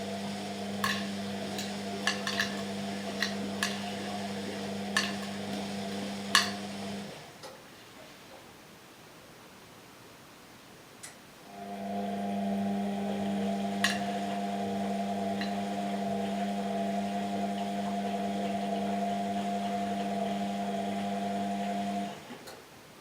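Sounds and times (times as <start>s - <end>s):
washing machine motor hum: 0.0s - 7.3s, 11.5s - 22.4s.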